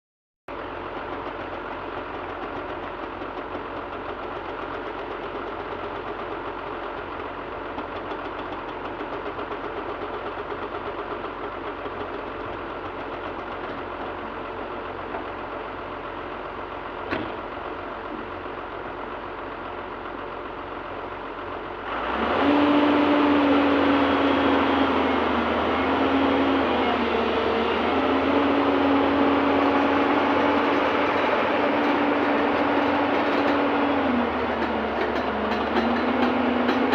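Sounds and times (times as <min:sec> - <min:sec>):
excavator diesel engine running: 0:00.5 - 0:36.9
steady whine: 0:23.4 - 0:36.9.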